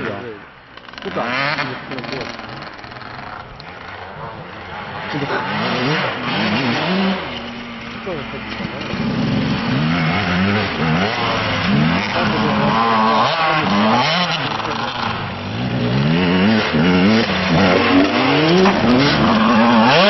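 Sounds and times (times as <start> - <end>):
motocross bikes revving: 0.0 - 20.0.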